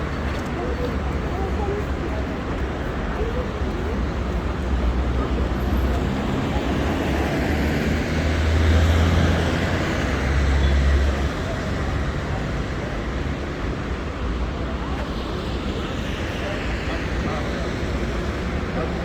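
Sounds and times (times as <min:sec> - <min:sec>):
tyres hissing on wet road: 0:04.0 - 0:19.0.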